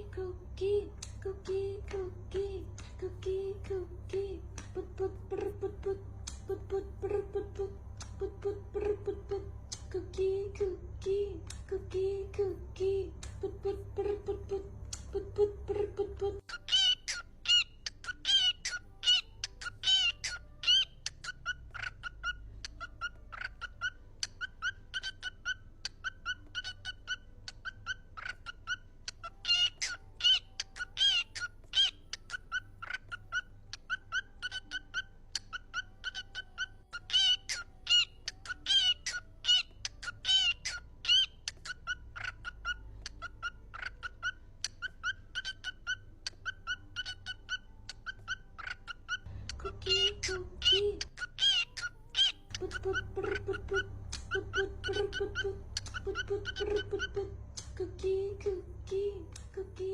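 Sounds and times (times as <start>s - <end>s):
parrot calling: 16.4s - 57.4s.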